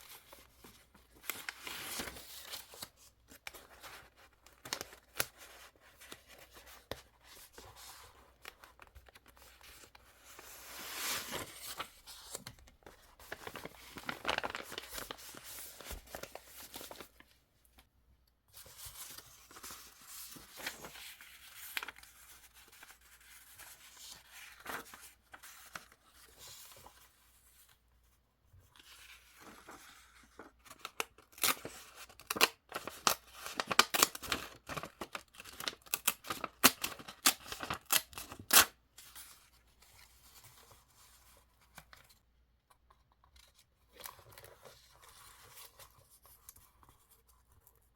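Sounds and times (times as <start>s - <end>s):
paper rustling and tearing: 13.2s - 17.2s.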